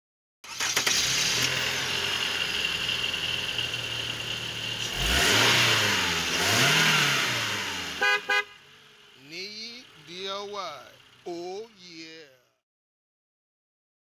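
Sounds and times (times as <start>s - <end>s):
car engine revving: 0.5s - 11.4s.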